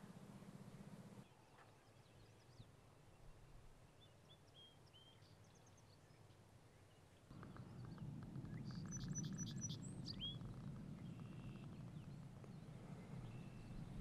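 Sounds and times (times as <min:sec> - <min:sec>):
low background hum: 0:00.0 - 0:14.0
wild birds chirping: 0:00.0 - 0:14.0
whistled bird notes: 0:07.4 - 0:14.0.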